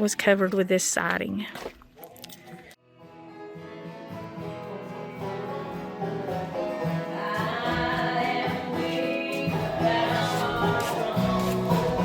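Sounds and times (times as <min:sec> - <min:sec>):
live acoustic group music: 0:03.0 - 0:12.0.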